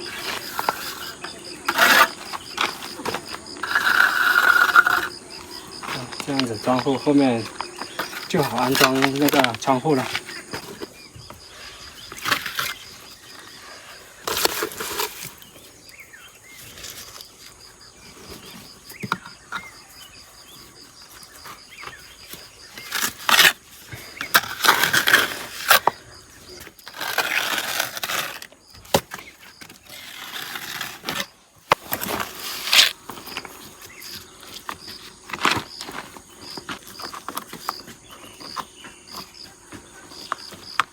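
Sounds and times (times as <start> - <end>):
trowel scraping mortar: 0.0 - 11.0, 11.6 - 15.5, 22.7 - 37.8.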